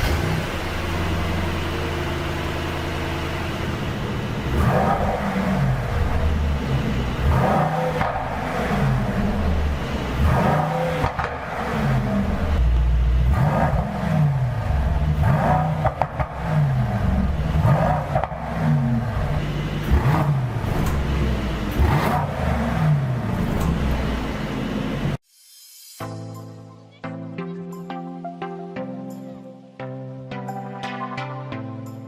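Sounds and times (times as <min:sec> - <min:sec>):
car engine revving: 0:00.0 - 0:25.2.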